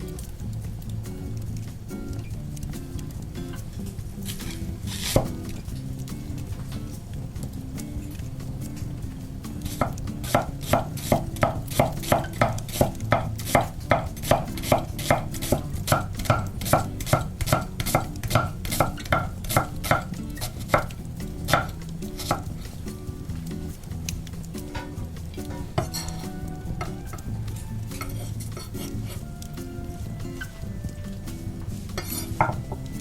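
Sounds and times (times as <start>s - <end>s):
soft background music: 0.0s - 33.0s
kitchen utensil strokes: 27.9s - 29.2s, 31.7s - 32.8s.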